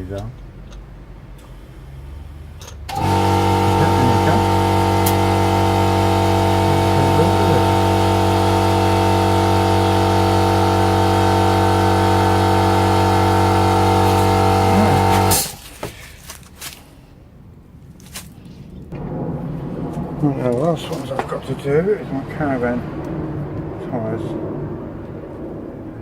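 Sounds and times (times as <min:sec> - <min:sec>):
air compressor running: 0:02.9 - 0:15.8.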